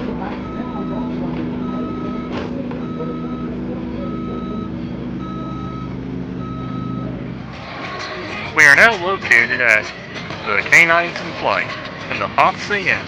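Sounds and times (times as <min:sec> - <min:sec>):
backup alarm beeping: 0:00.0 - 0:07.2
engine humming: 0:00.0 - 0:13.0.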